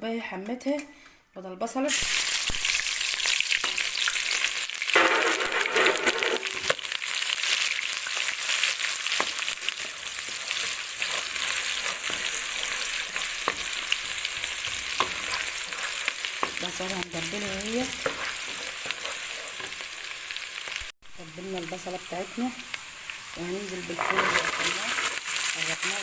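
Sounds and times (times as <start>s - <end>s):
onion sizzling in hot oil: 1.9s - 26.0s.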